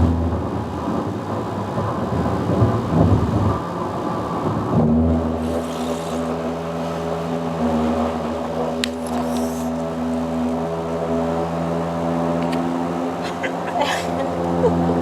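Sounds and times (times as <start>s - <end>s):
road and tyre noise in car: 0.0s - 15.0s
steady droning hum: 4.8s - 15.0s.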